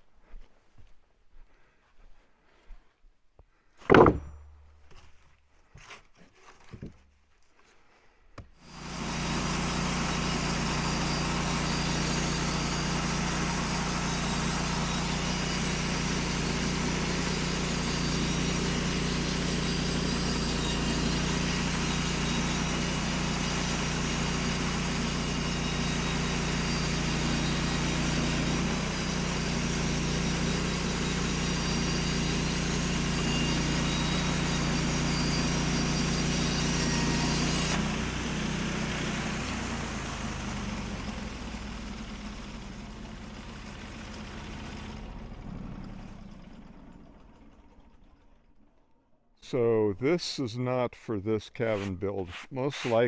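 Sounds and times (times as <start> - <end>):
knocks: 3.8 - 4.7
sawmill engine running: 8.6 - 48.7, 49.4 - 53.0.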